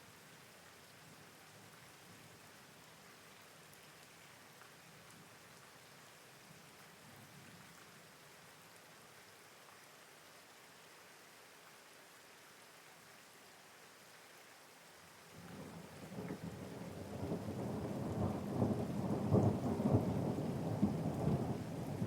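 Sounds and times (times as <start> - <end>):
steady rain: 0.0 - 22.0
rolling thunder rumble: 15.4 - 22.0.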